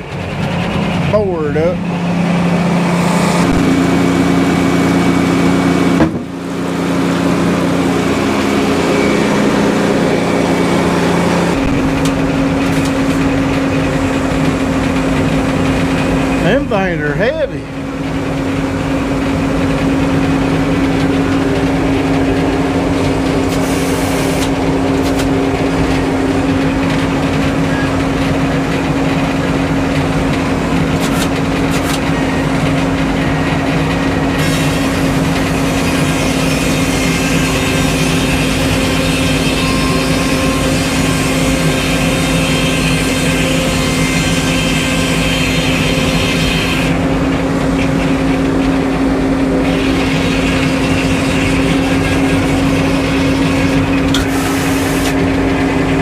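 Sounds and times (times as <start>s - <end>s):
sawmill engine running steadily: 0.0s - 56.0s.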